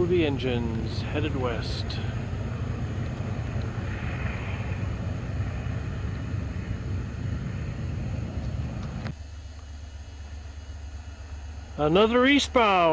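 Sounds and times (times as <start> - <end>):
freight train rumbling past: 0.0 - 9.1.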